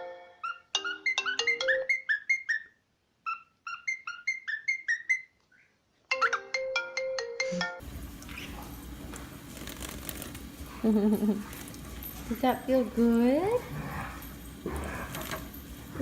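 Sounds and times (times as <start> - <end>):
ringtone melody: 0.0 - 2.7, 6.1 - 7.8
room hum: 7.8 - 16.0.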